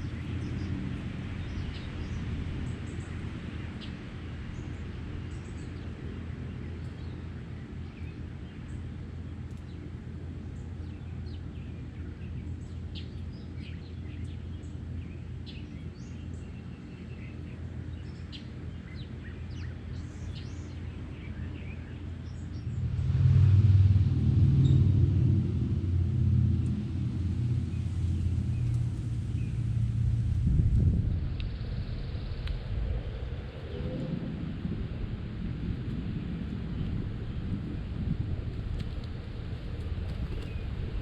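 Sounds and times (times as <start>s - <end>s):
small songbirds chirping: 0.0s - 23.0s, 27.6s - 30.0s
steady low rumble: 0.0s - 41.0s.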